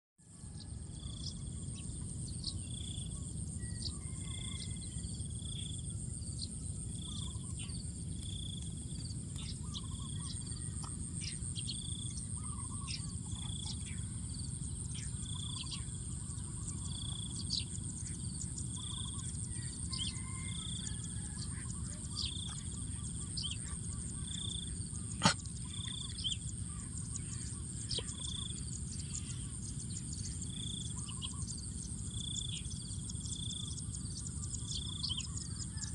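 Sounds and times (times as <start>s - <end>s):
birds chirping: 9.1s - 33.2s.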